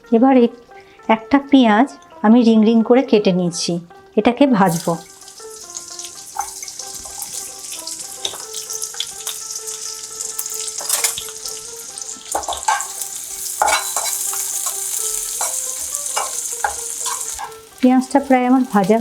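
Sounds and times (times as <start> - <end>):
onions sizzling in oil: 4.7 - 19.0
spatula scraping pan: 4.7 - 19.0.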